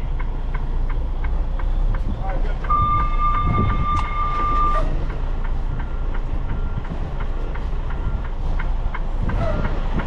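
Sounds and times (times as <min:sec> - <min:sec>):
diesel truck engine rumbling: 0:00.0 - 0:10.0
brief high beeps: 0:02.7 - 0:04.9.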